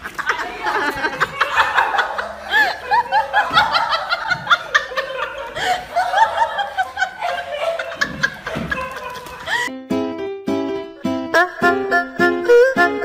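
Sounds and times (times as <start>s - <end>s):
person laughing: 0.0s - 9.7s.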